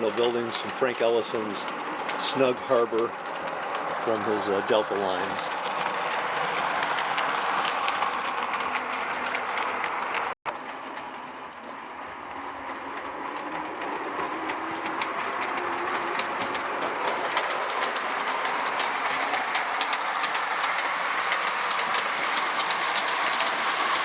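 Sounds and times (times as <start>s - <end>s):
model train running: 0.0s - 24.0s
wheels clicking over rail joints: 0.0s - 24.0s.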